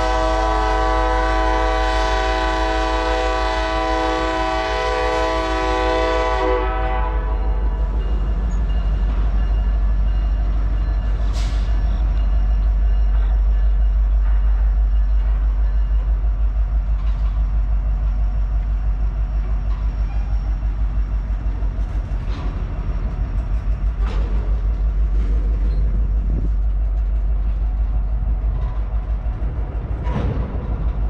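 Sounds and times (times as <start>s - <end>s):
train wheels rumbling on rail: 0.0s - 31.0s
sharp clanks and squeaks: 21.9s - 27.3s.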